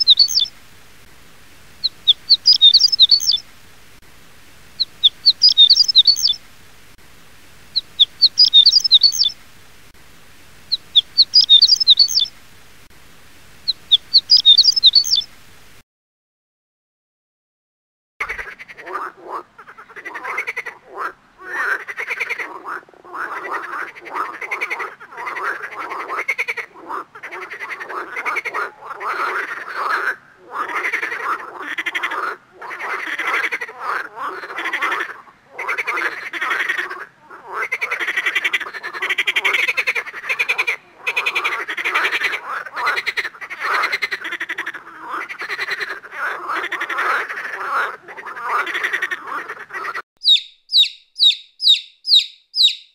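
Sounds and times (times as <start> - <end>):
frogs croaking: 0.0 - 0.6, 1.8 - 3.6, 4.7 - 6.6, 7.6 - 9.6, 10.6 - 12.4, 13.6 - 15.3, 18.2 - 52.9.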